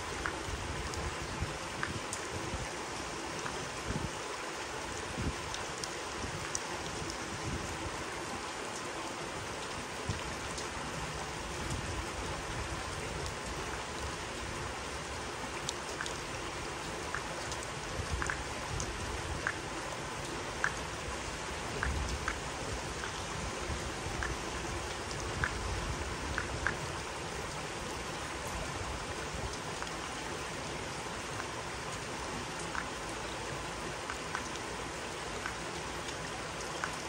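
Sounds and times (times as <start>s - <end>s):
steady rain hissing: 0.0s - 37.0s
raindrops tapping: 1.6s - 2.3s, 15.6s - 27.6s, 34.0s - 34.6s.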